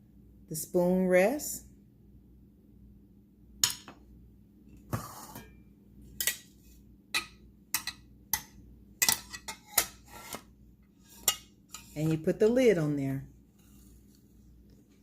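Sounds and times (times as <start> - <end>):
cookware clicking and knocking: 7.2 - 10.0.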